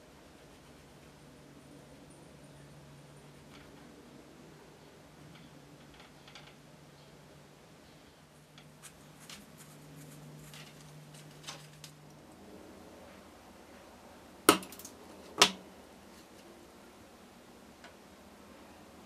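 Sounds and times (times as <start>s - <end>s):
small rattle: 5.3s - 6.7s.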